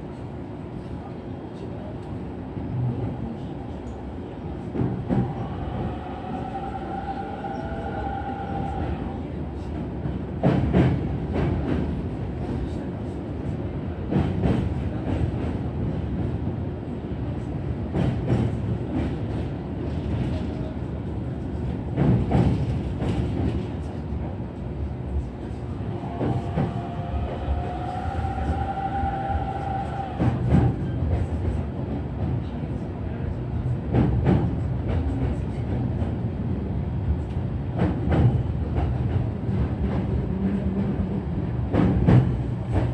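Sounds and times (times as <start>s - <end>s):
train rumble: 0.0s - 42.9s
train whine: 4.8s - 12.0s, 24.6s - 31.9s.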